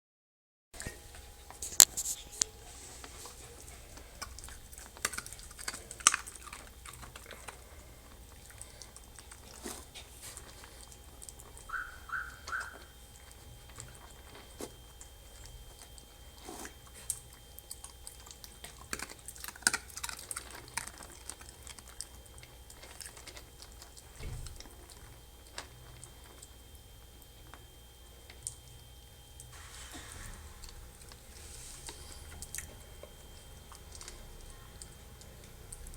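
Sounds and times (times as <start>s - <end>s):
puppies crunching dry kibble: 0.8s - 35.9s
puppy squeaks: 11.7s - 12.9s.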